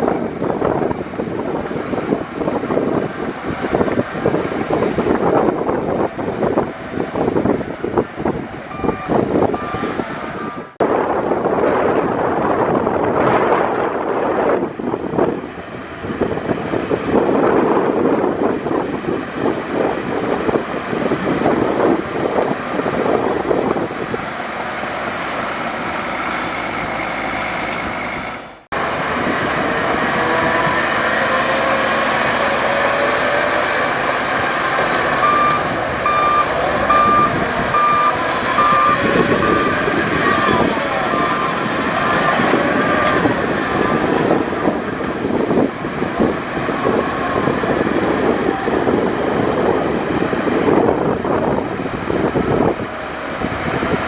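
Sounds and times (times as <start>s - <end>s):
diesel engine clatter: 0.0s - 54.0s
engine whine: 0.0s - 54.0s
reversing alarm beeping: 8.7s - 10.8s, 35.0s - 43.2s.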